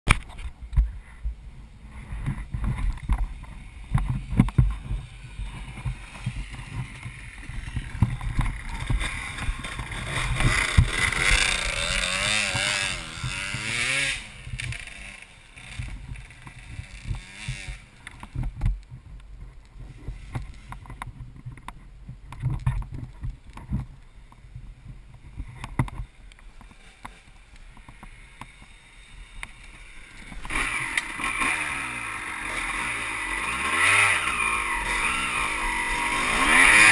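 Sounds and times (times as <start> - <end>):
dirt bike engine revving: 3.6 - 18.3, 28.0 - 36.9.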